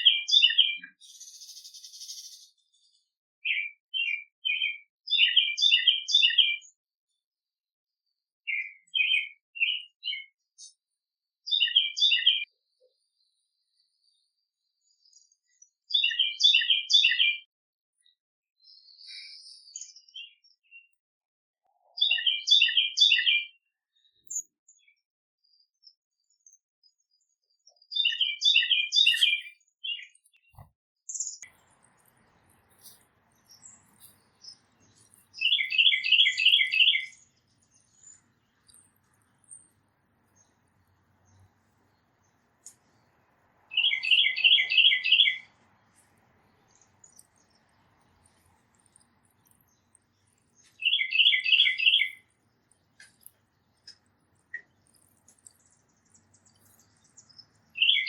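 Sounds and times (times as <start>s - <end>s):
faint bird chirps: 0.0s - 6.8s, 8.5s - 10.8s, 11.5s - 20.9s, 21.7s - 58.0s
songbird singing repeated notes: 0.0s - 6.8s, 8.5s - 10.7s, 11.5s - 12.5s, 15.1s - 17.5s, 21.8s - 25.0s, 27.7s - 58.0s.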